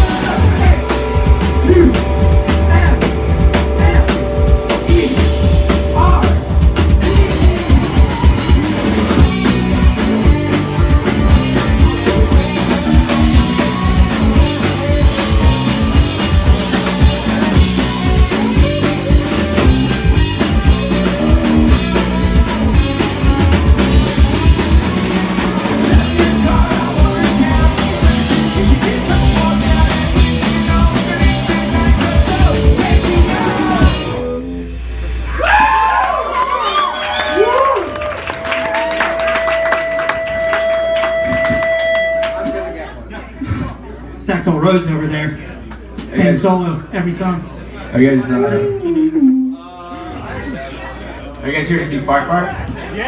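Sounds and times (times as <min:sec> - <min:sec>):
guitars: 0:00.0 - 0:35.5
drum kit: 0:00.0 - 0:42.8, 0:45.8 - 0:46.4
rock band playing live: 0:00.0 - 0:43.0
person singing: 0:03.7 - 0:34.3.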